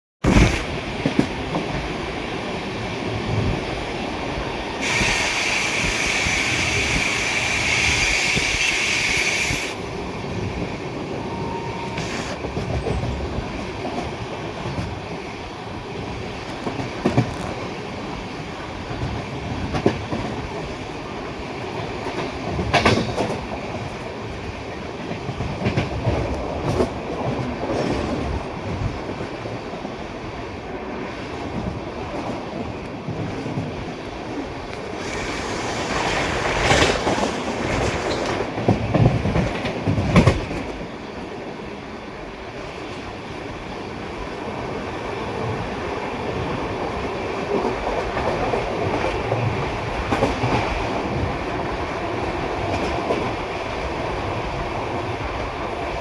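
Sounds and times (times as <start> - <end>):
high hissing rush: 4.8 - 10.0, 11.2 - 12.4, 34.9 - 37.2
train wheels clacking over rail joints: 22.0 - 24.0, 34.8 - 40.9.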